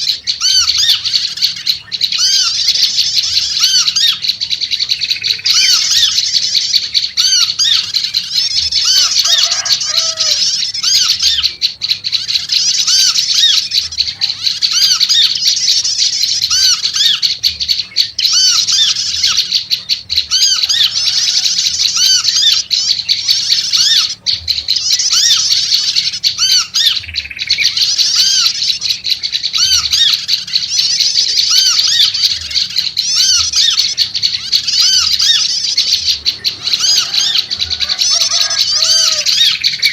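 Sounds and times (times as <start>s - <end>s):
bird chattering chirps: 0.0s - 39.9s.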